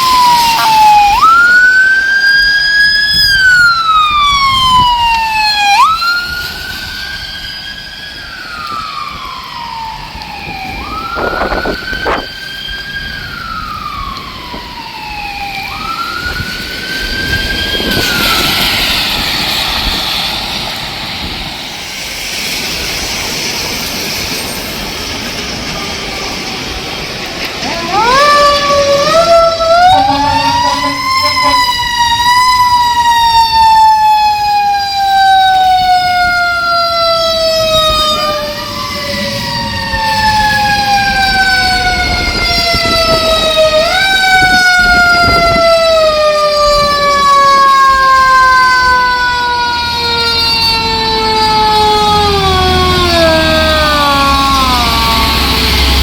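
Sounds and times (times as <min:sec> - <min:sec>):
fire truck siren: 0:00.0 - 0:56.0
heavy truck engine: 0:23.4 - 0:32.1, 0:50.6 - 0:56.0.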